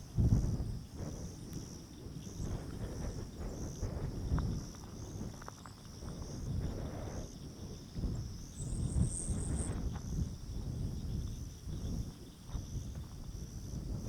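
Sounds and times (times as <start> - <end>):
insects trilling: 0.0 - 14.0
wind rumbling on microphone: 0.0 - 14.0.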